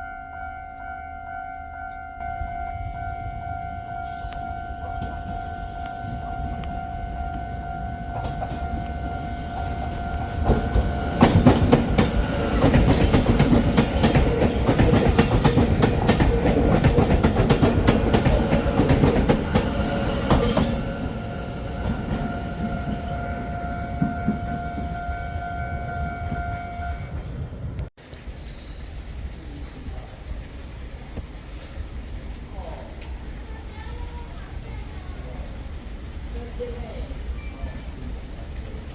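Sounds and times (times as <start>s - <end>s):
train wheels clattering: 4.0s - 27.8s.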